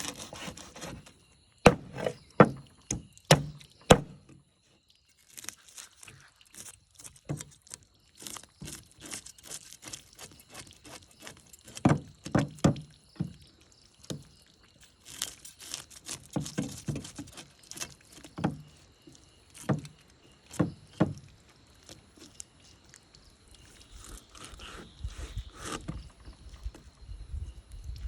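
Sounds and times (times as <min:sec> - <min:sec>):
knife scraping fish: 0:00.0 - 0:02.2, 0:08.2 - 0:11.8, 0:15.0 - 0:18.4, 0:23.8 - 0:26.1
knife chopping fish: 0:01.7 - 0:02.6, 0:03.3 - 0:04.2.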